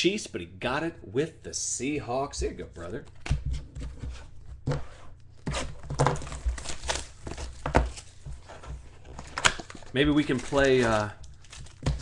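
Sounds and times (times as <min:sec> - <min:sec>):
card wrappers crinkling and tearing: 0:05.8 - 0:12.0.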